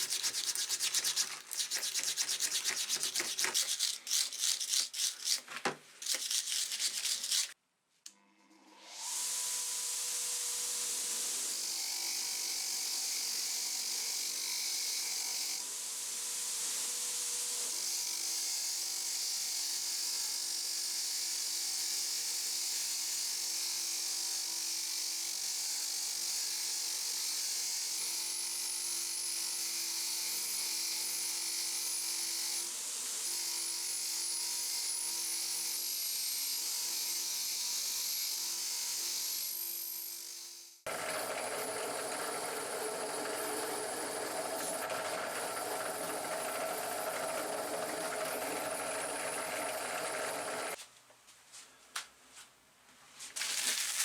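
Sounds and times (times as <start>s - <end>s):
small electric power tool running: 8.8s - 50.8s.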